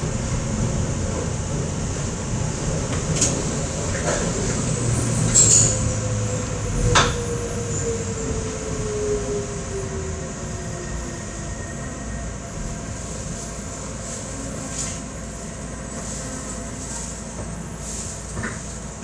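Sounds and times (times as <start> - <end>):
train running: 0.0 - 19.0
high wheel squeal: 5.3 - 5.9.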